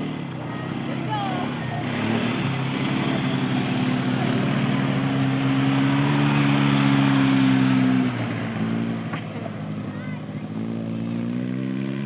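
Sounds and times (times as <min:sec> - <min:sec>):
motor engine running: 0:00.0 - 0:12.0.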